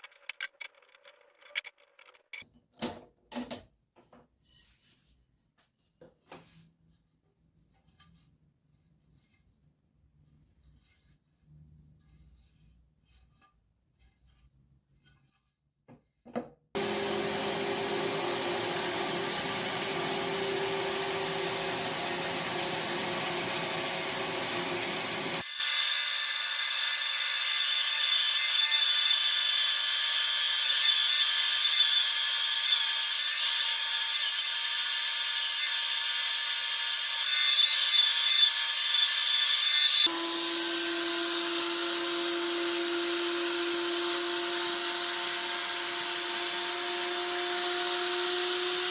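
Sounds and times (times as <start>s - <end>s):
power tool cutting wood: 16.8s - 48.9s.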